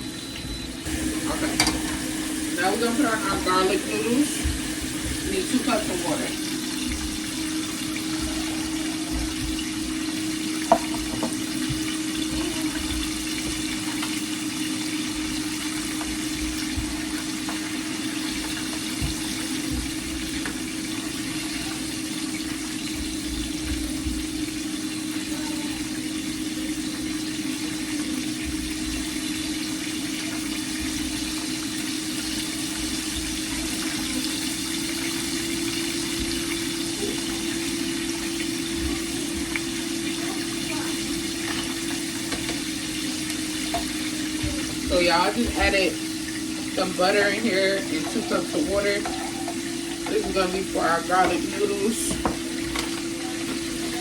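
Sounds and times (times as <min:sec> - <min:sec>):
chicken deep-frying in oil: 0:00.0 - 0:54.0
even hum: 0:00.0 - 0:54.0.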